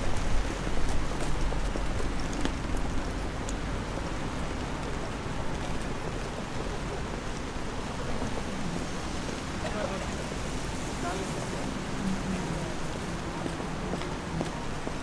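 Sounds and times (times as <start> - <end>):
steady rain on street: 0.0 - 15.0.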